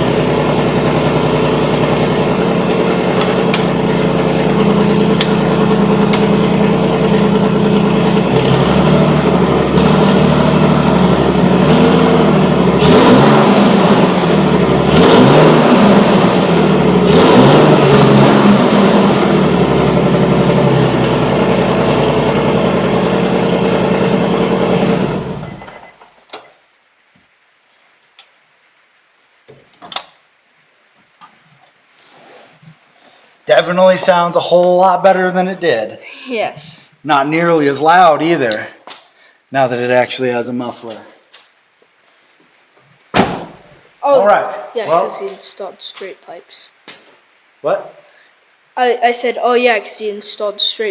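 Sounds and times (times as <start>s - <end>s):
car engine idling: 0.0s - 25.8s
engine revving: 0.0s - 25.8s.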